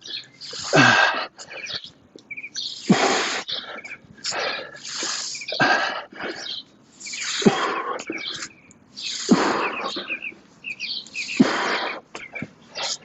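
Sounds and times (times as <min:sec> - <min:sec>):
birds chirping faintly: 0:00.0 - 0:13.0
person exhaling hard and hissing: 0:00.4 - 0:01.5, 0:02.8 - 0:03.5, 0:04.2 - 0:06.4, 0:07.0 - 0:10.0.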